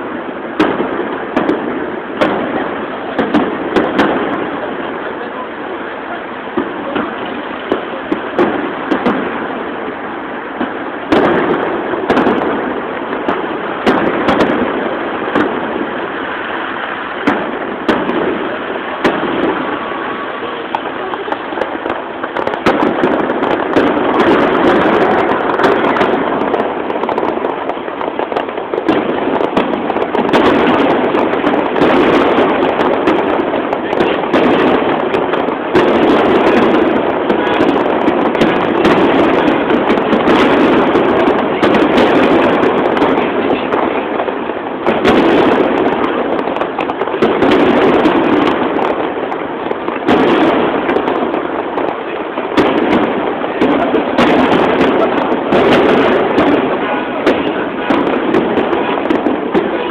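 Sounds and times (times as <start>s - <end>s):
firework shells bursting: 0.0s - 59.9s
continuous din: 17.2s - 49.1s, 49.9s - 59.9s.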